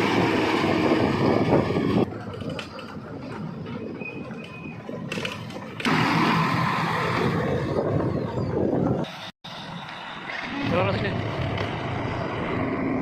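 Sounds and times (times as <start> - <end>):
heavy diesel machinery engine: 0.0 - 2.3, 5.2 - 8.3.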